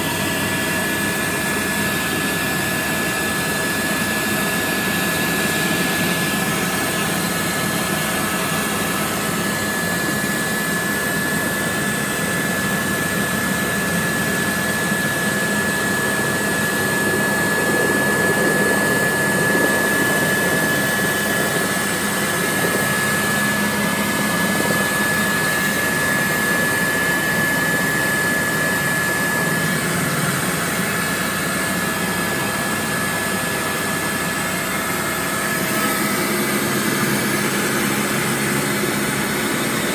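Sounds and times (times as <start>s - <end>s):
helicopter engine and rotor noise: 0.0s - 39.9s
thin high whine: 0.0s - 39.9s.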